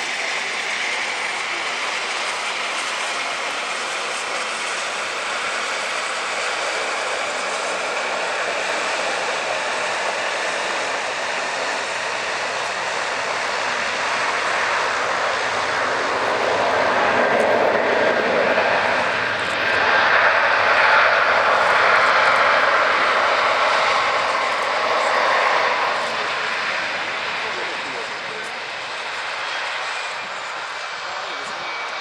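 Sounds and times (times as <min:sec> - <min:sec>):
airliner engine passing: 0:00.0 - 0:32.0.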